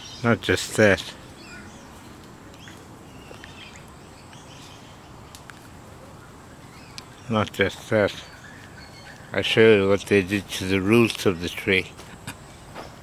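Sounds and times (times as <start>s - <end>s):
faint bird chirps: 1.2s - 5.2s.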